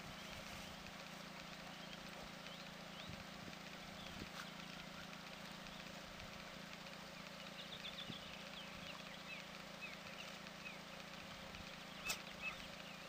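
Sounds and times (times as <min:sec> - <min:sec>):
faint bird chirps: 0:06.8 - 0:13.0.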